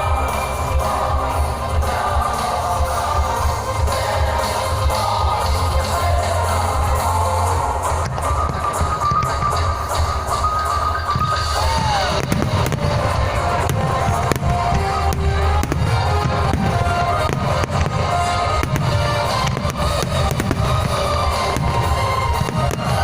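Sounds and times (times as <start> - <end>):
fireworks bangs and cracks: 0.0 - 23.0
loud music with heavy bass: 0.0 - 23.0.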